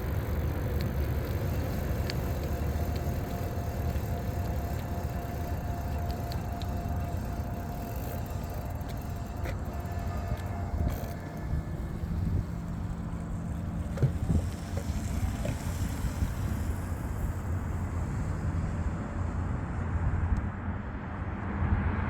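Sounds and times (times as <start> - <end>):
wind buffeting microphone: 0.0 - 19.2
road rumble from e-bike: 0.0 - 22.0.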